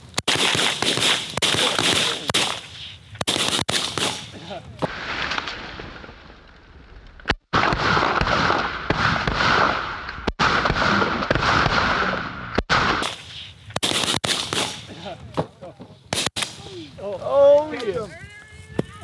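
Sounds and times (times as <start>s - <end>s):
shotgun volley: 0.0s - 5.0s, 10.4s - 17.0s
single sharp shotgun shots: 0.0s - 5.3s, 7.5s - 15.0s, 16.1s - 16.8s.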